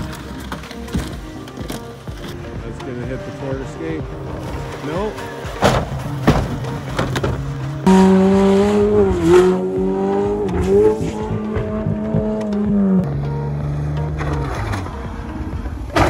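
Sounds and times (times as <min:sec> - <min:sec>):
car engine revving high: 0:07.8 - 0:16.0.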